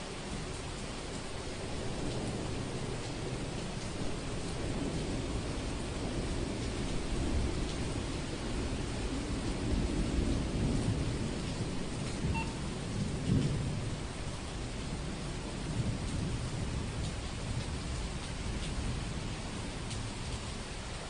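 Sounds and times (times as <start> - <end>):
steady rain: 0.0 - 21.0
rolling thunder rumble: 1.1 - 20.6.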